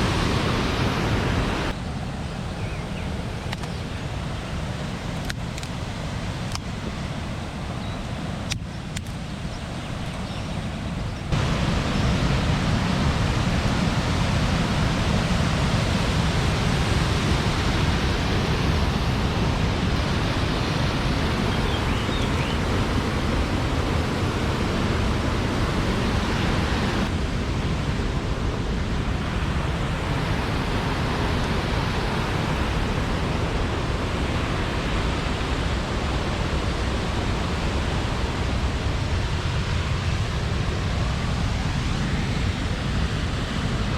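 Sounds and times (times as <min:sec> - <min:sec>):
waterfall rushing: 0:00.0 - 0:01.8, 0:11.3 - 0:43.9.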